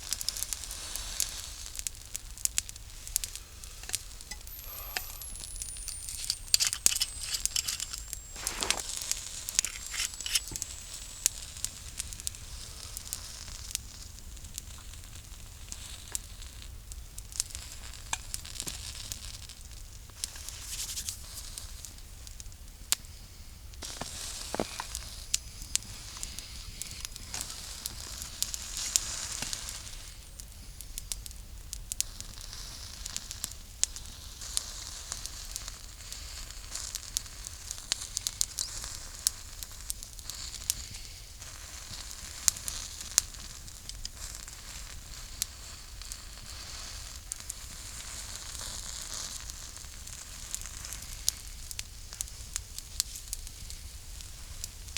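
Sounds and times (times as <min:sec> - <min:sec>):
campfire crackling and popping: 0:00.0 - 0:54.9
food sizzling: 0:03.4 - 0:13.1.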